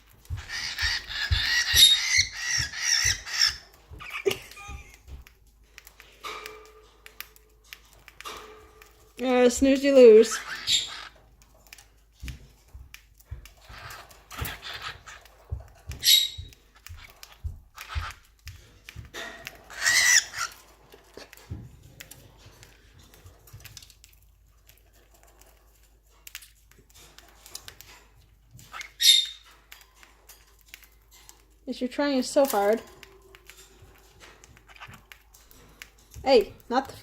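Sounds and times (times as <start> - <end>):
small pets nibbling clicks: 0.0 - 37.0
high-pitched squeaks: 0.2 - 5.0, 15.9 - 18.2.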